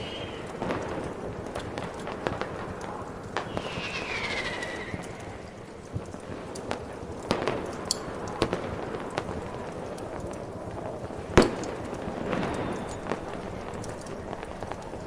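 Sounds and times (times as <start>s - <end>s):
steady hiss: 0.0s - 1.1s
fireworks bangs and cracks: 0.0s - 15.0s.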